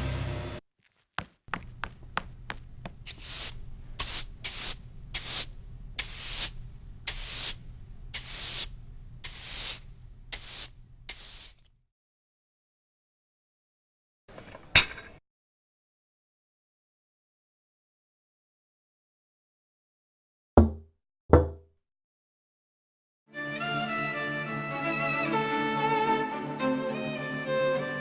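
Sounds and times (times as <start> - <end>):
low steady hum: 1.5 - 9.2, 9.8 - 11.1
short hissing bursts: 3.1 - 11.7.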